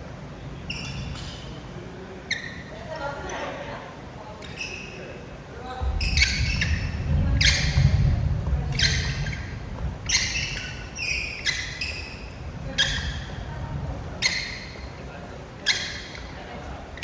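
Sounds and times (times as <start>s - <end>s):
sneakers squeaking on court floor: 0.7s - 1.6s, 2.2s - 2.8s, 5.8s - 17.0s.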